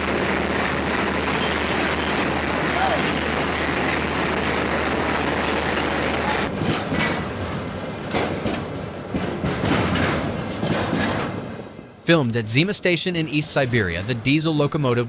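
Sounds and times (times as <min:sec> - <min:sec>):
train rumbling on rails: 0:00.0 - 0:15.0
sharp clanks: 0:06.5 - 0:11.9
wheels clattering: 0:06.5 - 0:12.0.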